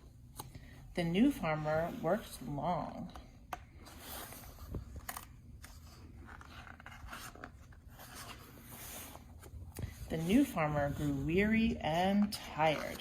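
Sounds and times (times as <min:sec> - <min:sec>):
paper pages rustling: 0:03.7 - 0:13.0.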